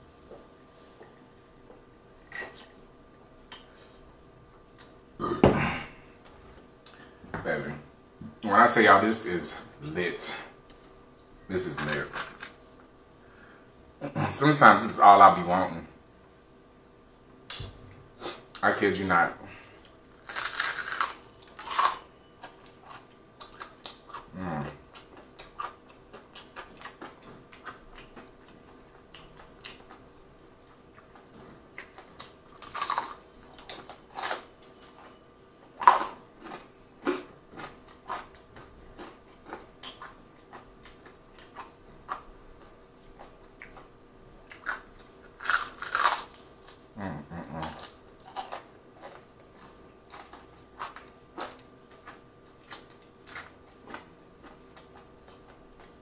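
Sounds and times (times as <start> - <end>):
crunching fried chicken: 19.7 - 30.1, 31.8 - 43.9, 44.5 - 56.0
chewing: 19.7 - 56.0.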